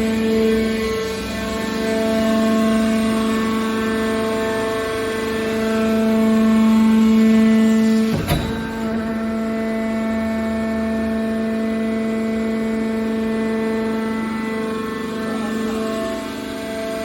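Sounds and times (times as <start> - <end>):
sharp knock: 8.1 - 9.6
can baler humming: 8.1 - 9.8.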